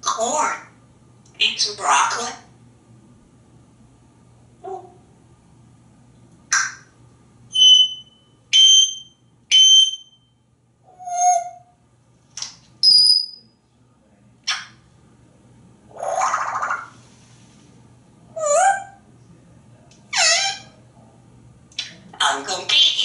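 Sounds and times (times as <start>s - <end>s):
parrot hooting note: 7.5s - 10.1s
parrot whistling: 7.5s - 10.2s, 10.9s - 11.6s, 12.8s - 13.4s, 20.2s - 20.7s.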